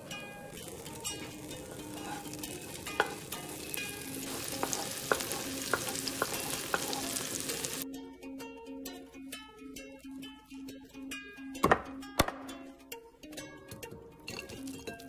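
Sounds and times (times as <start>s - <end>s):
beans sizzling in hot oil: 0.0s - 7.8s, 14.3s - 15.0s
spatula scraping a wok: 0.0s - 7.8s.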